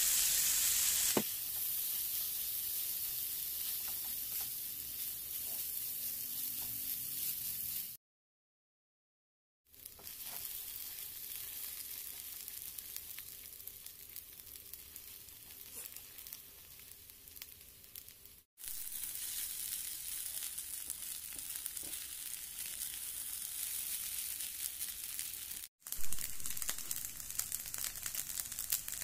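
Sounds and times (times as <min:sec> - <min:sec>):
rice sizzling in a pan: 0:00.0 - 0:08.0, 0:09.7 - 0:29.0
spatula turning rice: 0:00.0 - 0:08.0, 0:09.8 - 0:17.6.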